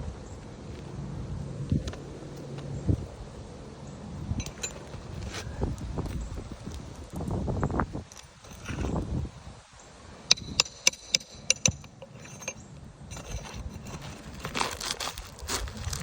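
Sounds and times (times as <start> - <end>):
scraping and rustling: 4.4 - 9.3, 11.2 - 16.0
metal tool tapping roof shingles: 10.3 - 15.1.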